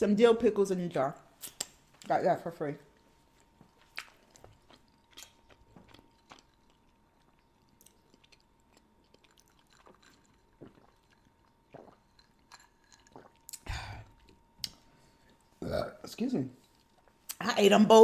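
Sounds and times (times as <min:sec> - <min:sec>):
person chewing food: 0:03.3 - 0:15.8.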